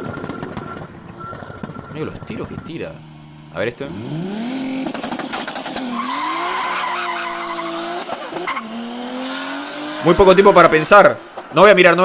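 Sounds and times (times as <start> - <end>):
car engine accelerating hard: 2.2 - 11.6.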